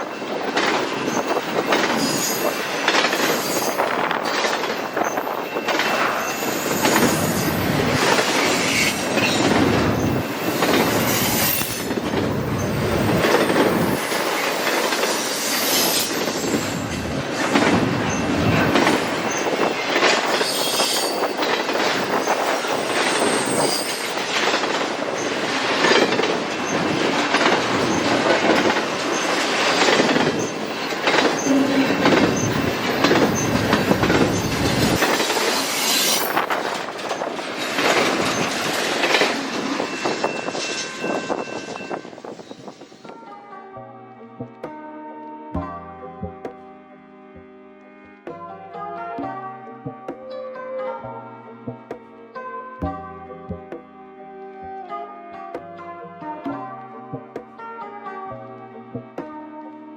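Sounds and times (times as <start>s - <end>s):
train wheel clatter: 0.0s - 43.2s
high wheel squeal: 1.0s - 4.3s, 4.9s - 16.9s, 18.0s - 21.4s, 22.0s - 24.3s, 27.7s - 43.1s.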